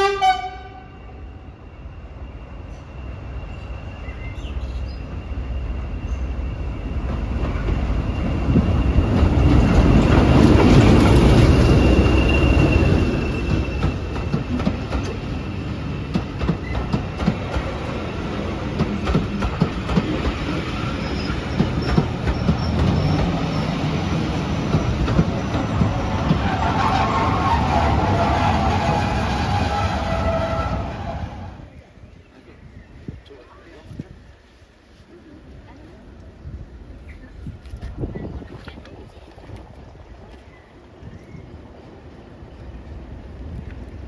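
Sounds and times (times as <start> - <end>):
diesel train moving: 0.0 - 44.0
high wheel squeal: 1.5 - 16.9, 20.6 - 24.0, 25.9 - 31.6
wheels clacking over rail joints: 6.9 - 31.2.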